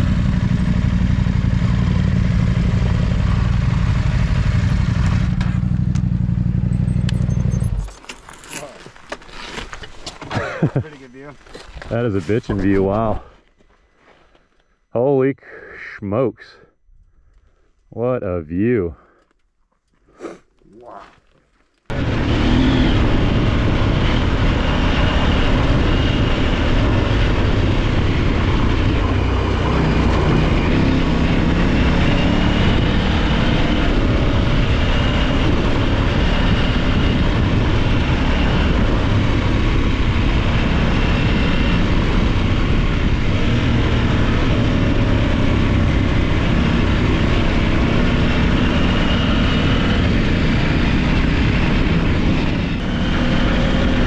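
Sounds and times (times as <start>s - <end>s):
motorcycle engine running: 0.0s - 7.9s, 21.9s - 54.0s
wind rush on microphone: 21.9s - 54.0s.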